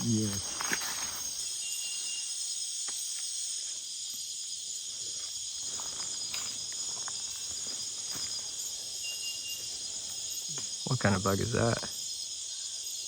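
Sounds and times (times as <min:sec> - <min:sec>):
insects buzzing and trilling: 0:00.0 - 0:13.0.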